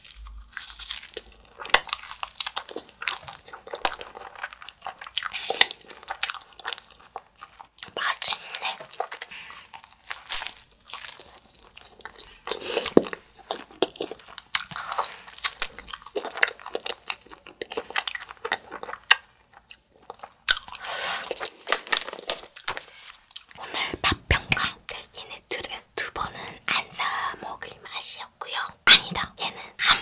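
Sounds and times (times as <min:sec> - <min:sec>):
crisp wafer crunching: 0:00.0 - 0:23.6.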